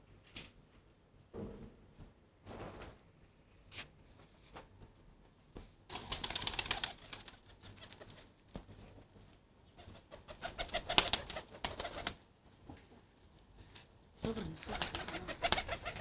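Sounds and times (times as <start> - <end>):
pigeon wings flapping: 5.9 - 8.8, 9.8 - 12.2, 14.5 - 16.0.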